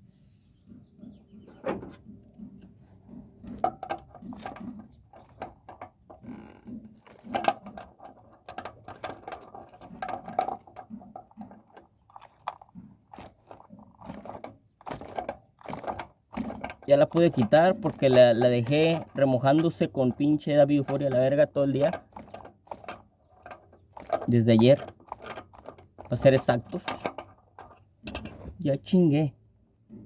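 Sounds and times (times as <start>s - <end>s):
metallic clicks from hand tools: 15.0s - 28.4s.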